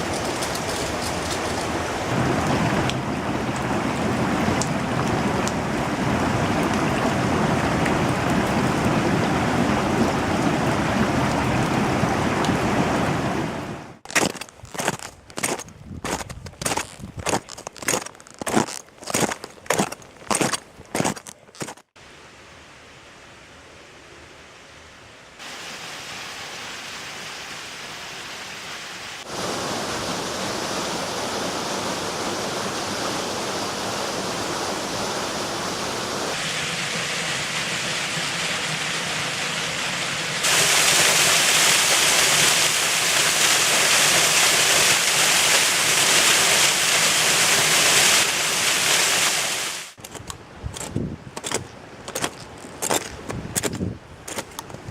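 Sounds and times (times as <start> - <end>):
stream and waterfall rushing: 0.0 - 14.0, 22.0 - 50.6.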